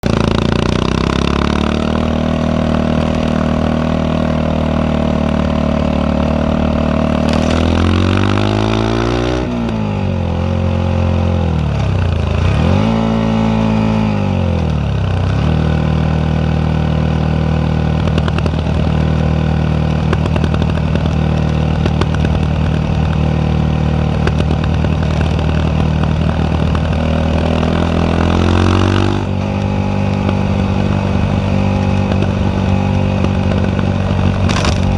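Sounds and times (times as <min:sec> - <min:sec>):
motorcycle engine revving and idling: 0:00.0 - 0:34.9
exhaust pops: 0:19.9 - 0:27.1, 0:29.4 - 0:34.9.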